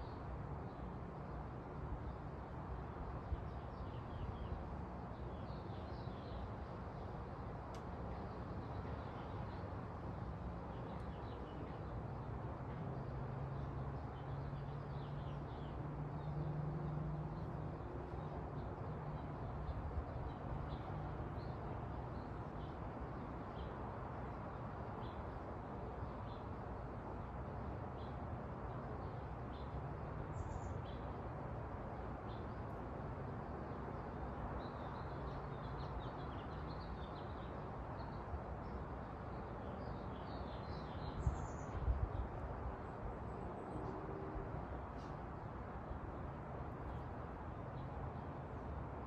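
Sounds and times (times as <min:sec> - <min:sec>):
low outdoor background hum: 0:00.0 - 0:49.0.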